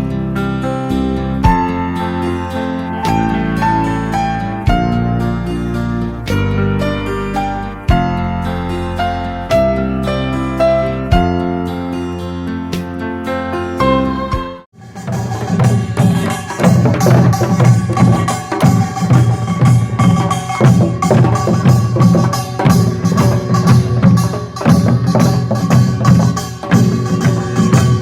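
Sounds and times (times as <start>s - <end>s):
ringing gong tones: 2.6s - 5.0s
fast drum strokes: 14.8s - 28.0s.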